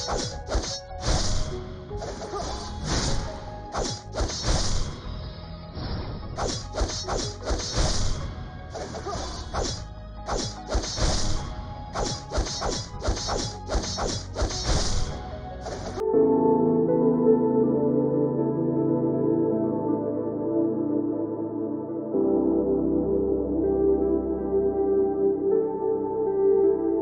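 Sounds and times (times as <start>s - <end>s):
hard strikes with sharp hiss: 0.0s - 4.9s, 6.4s - 8.2s, 8.9s - 15.8s
faint background music: 0.0s - 27.0s.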